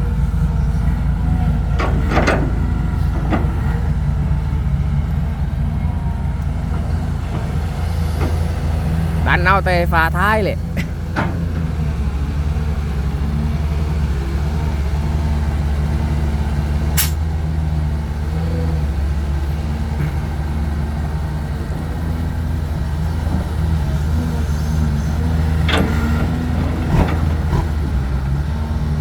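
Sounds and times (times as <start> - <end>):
heavy diesel engine running: 0.0 - 29.0
short sharp hiss: 17.0 - 17.2.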